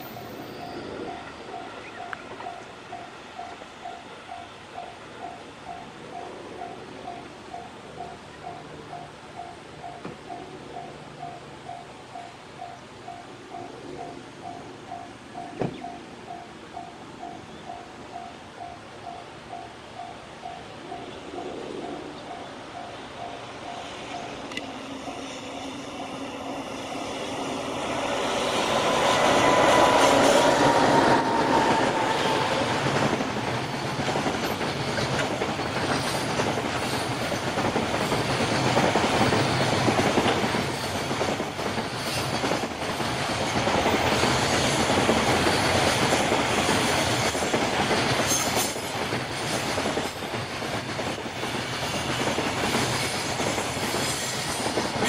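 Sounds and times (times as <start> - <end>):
high wheel squeal: 0.0 - 1.8
level-crossing bell dinging: 0.0 - 37.2
wheels clicking over rail joints: 0.0 - 55.0.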